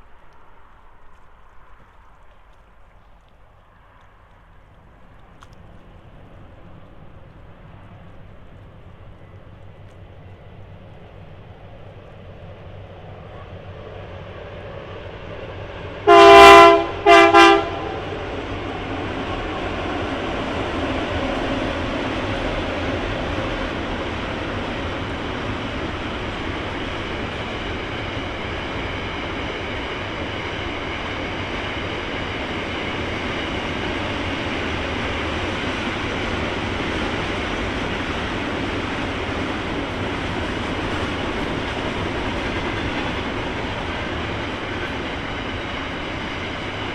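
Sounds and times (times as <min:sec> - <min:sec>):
wheels on rails: 0:00.0 - 0:16.0, 0:17.8 - 0:46.9
train rumbling past: 0:00.0 - 0:46.9
locomotive horn blasts: 0:16.0 - 0:18.1.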